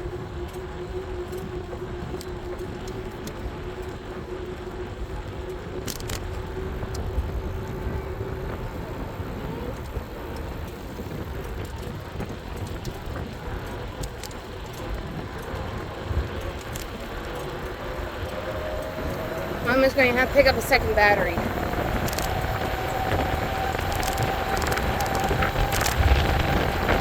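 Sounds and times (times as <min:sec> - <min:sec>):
bike tyre noise: 0:00.0 - 0:27.0
wind rumbling on microphone: 0:00.0 - 0:27.0
electric motor whine: 0:14.2 - 0:27.0.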